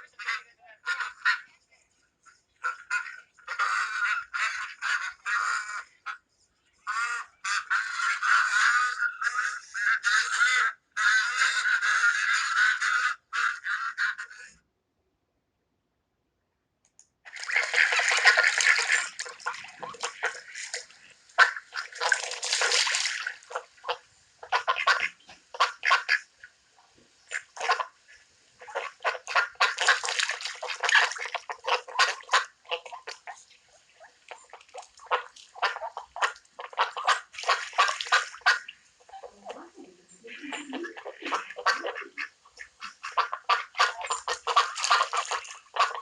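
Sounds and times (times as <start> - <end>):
water splashing and sloshing: 17.3 - 46.0.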